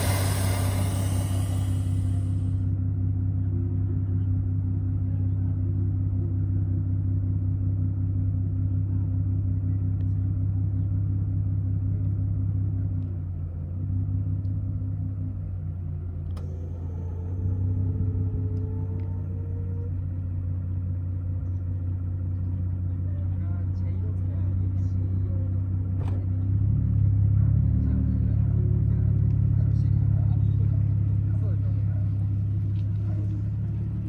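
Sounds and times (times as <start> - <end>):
faint steady whine: 0.0 - 2.7
car engine idling: 0.0 - 34.0.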